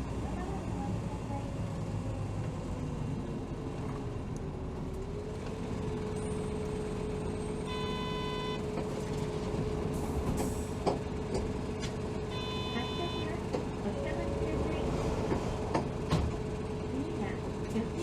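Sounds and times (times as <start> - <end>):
bus engine drone: 0.0 - 18.0
electronic tone: 7.7 - 8.6, 12.3 - 13.3.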